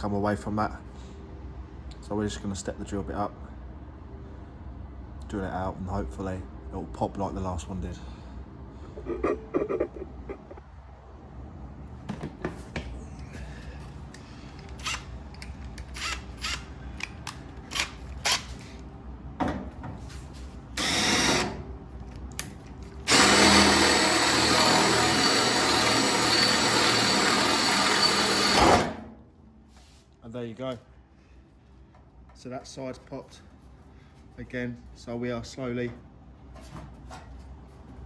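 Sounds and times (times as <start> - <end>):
power drill boring into steel: 20.8 - 21.6, 23.1 - 29.0.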